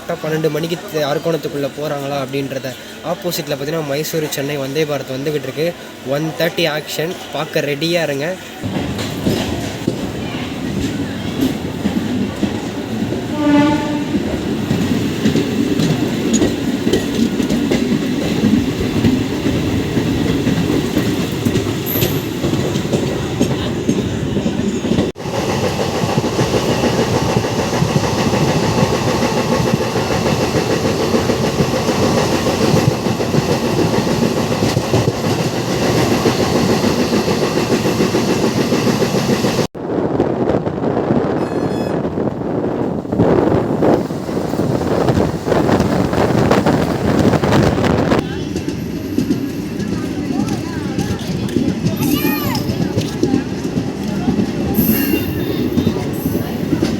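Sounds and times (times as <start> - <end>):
electric train running: 10.8 - 39.7
train horn blast: 13.3 - 14.3.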